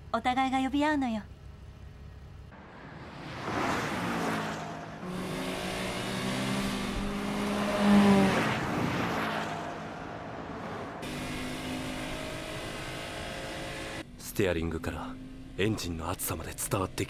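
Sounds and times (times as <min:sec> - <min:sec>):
sports car engine accelerating: 0:02.5 - 0:15.9.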